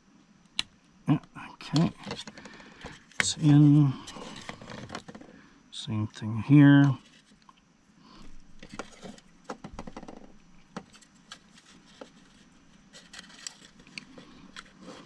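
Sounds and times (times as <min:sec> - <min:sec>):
small parts clicking and scraping: 0:10.9 - 0:15.0.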